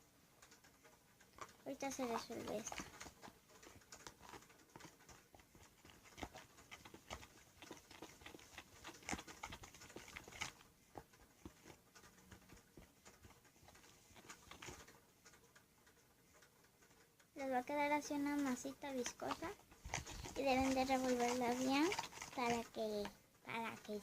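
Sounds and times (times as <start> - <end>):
fork stirring and scraping dough: 0.5 - 15.6, 16.2 - 24.0.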